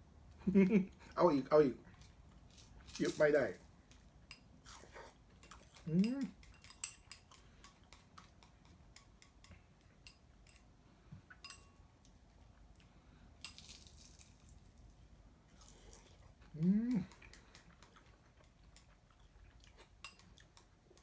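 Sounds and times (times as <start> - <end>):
person humming: 16.5 - 17.2.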